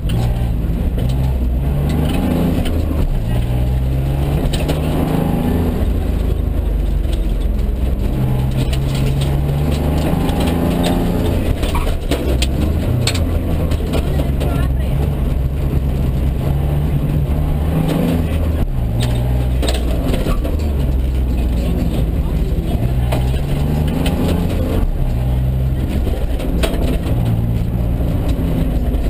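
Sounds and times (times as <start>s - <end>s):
rally car engine revving: 0.0s - 29.0s
sharp clicks or knocks: 5.8s - 14.5s.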